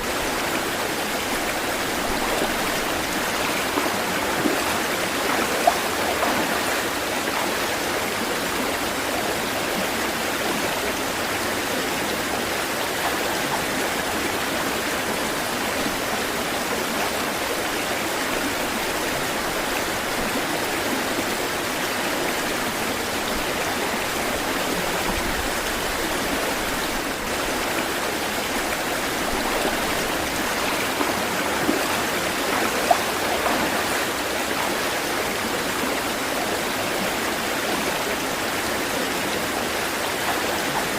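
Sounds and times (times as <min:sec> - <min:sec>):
small water splashes: 0:00.0 - 0:07.9, 0:22.4 - 0:37.1
water rushing: 0:00.0 - 0:40.9.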